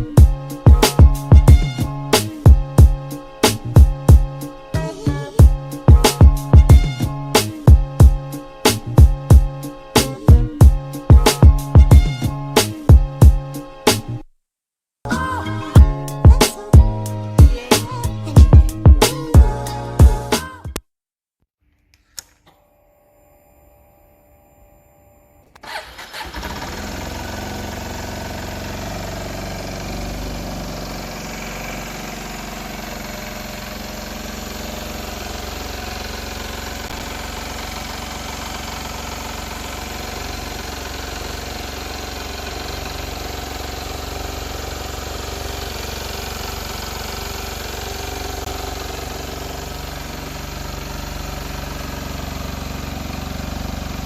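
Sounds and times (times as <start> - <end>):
motorcycle engine starting and idling: 25.5 - 54.0.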